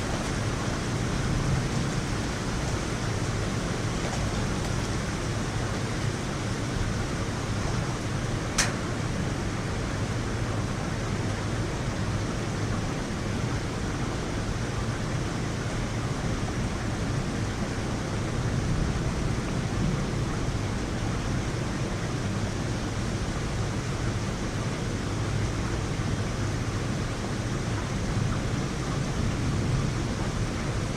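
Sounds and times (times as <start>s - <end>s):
heavy rain falling: 0.0s - 10.7s.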